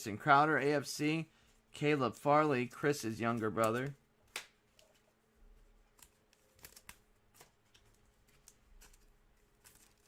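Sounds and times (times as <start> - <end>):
cards being handled and flipped: 2.1 - 10.0.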